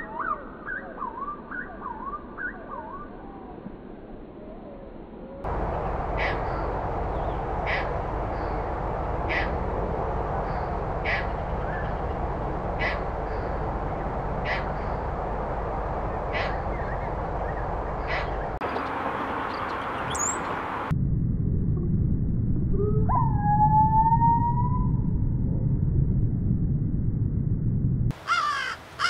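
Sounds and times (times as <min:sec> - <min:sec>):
loud noisy background: 0:05.5 - 0:19.6
bird calling: 0:05.5 - 0:20.8, 0:28.2 - 0:28.8.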